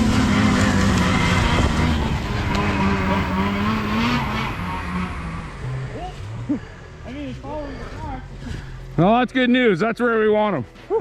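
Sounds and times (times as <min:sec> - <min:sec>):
snowmobile engine running: 0:00.0 - 0:08.7.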